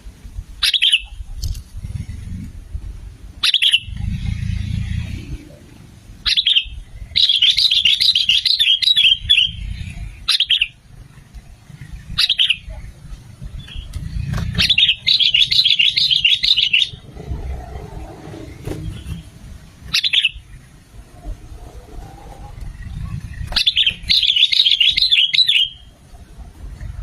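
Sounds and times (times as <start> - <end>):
bird calling sharp notes: 0.6 - 1.4, 3.4 - 5.2, 6.2 - 10.8, 11.8 - 12.9, 13.6 - 20.7, 21.5 - 26.0
bird chattering song: 0.6 - 1.4, 3.4 - 5.4, 6.2 - 10.8, 11.4 - 18.1, 18.7 - 20.7, 22.5 - 26.0.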